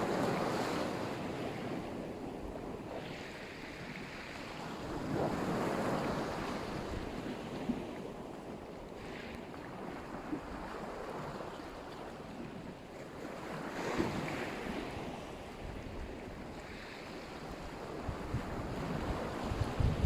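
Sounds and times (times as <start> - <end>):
surf breaking on shore: 0.0 - 7.9
wind buffeting microphone: 13.7 - 20.0.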